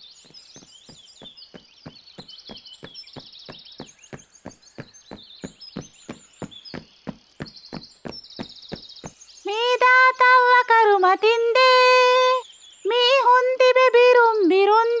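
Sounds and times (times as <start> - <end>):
birds chirping and trilling: 0.0 - 15.0
cartoon footsteps: 0.6 - 9.2.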